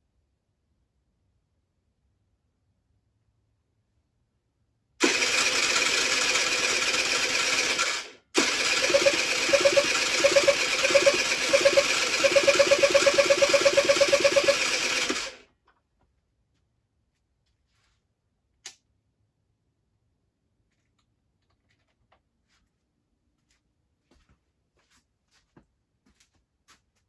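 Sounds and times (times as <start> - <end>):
electric starter cranking engine: 5.0 - 15.4.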